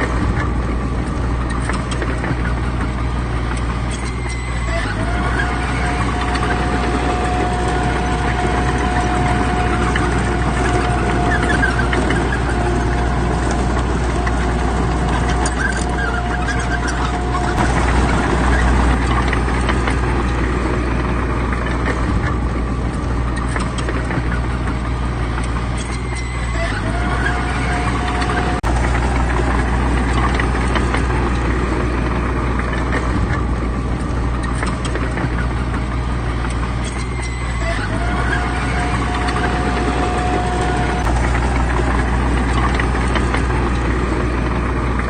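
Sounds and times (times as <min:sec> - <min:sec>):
heavy diesel machinery engines: 0:00.0 - 0:45.0
thin steady whine: 0:02.4 - 0:23.5, 0:35.2 - 0:45.0.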